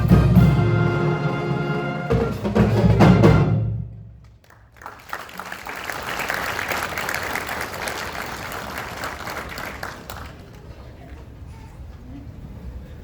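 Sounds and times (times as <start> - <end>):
audience applauding: 4.2 - 11.3.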